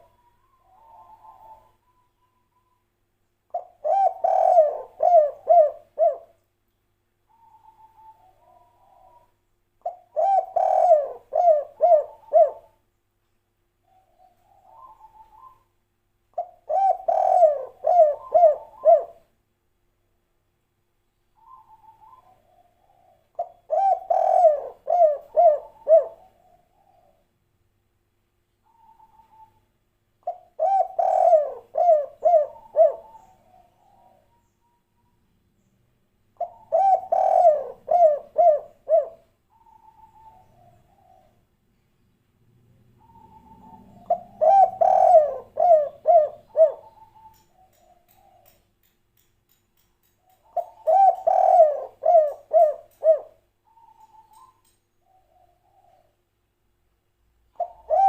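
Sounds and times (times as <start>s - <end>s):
dove cooing: 0.0s - 2.8s, 3.5s - 6.4s, 7.3s - 12.8s, 13.8s - 15.7s, 16.4s - 19.3s, 21.4s - 27.2s, 28.6s - 29.6s, 30.2s - 34.8s, 36.4s - 41.4s, 42.9s - 48.6s, 50.3s - 56.2s, 57.5s - 58.0s.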